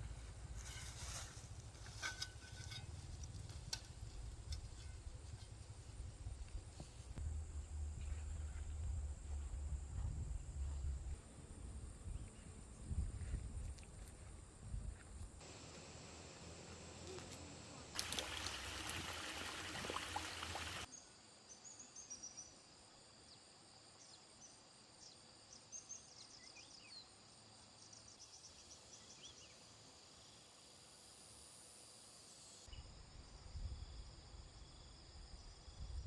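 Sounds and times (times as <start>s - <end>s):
insects buzzing: 7.2s - 21.0s
rushing water: 18.0s - 20.9s.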